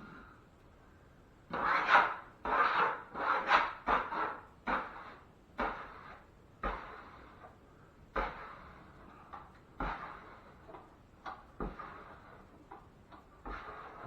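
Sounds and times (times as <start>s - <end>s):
drywall tool rubbing compound: 1.5s - 14.0s.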